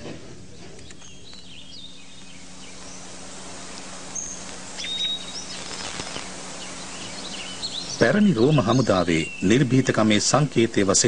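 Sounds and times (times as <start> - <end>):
steady low hum: 0.0 - 11.0
high bird chirps: 0.9 - 9.7.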